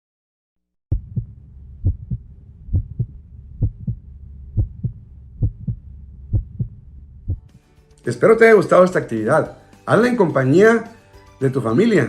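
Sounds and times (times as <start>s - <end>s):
low steady hum: 0.9s - 7.5s
heartbeat thumps: 0.9s - 7.6s.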